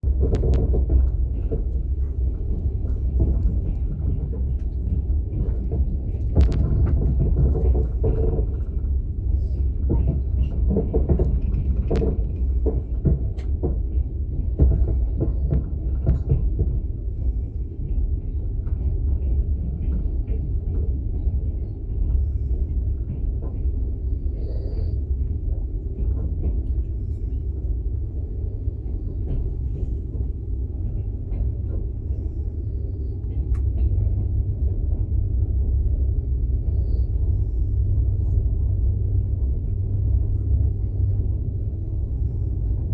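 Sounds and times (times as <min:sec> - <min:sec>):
train rumble inside carriage: 0:00.0 - 0:42.9
light clicks and knocks: 0:00.2 - 0:16.8.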